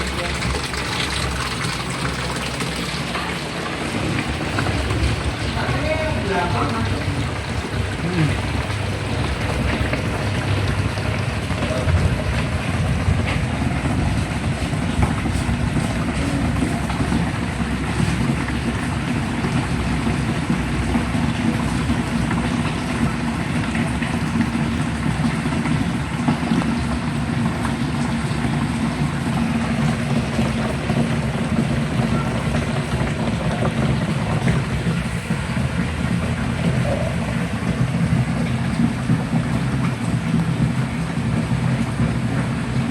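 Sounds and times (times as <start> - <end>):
washing machine motor hum: 0.0 - 42.9
water churning in wash tub: 0.0 - 42.9.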